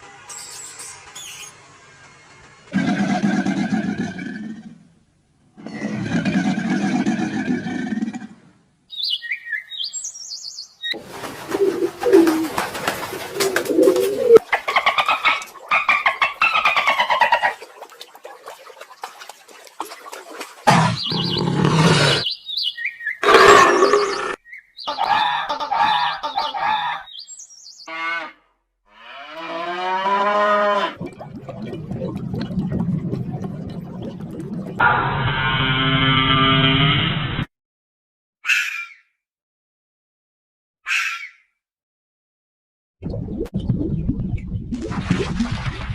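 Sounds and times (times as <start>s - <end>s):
low warbling bird call: 20.7s - 25.0s
high quick bird chirps: 20.9s - 25.0s
cow mooing: 29.0s - 31.0s.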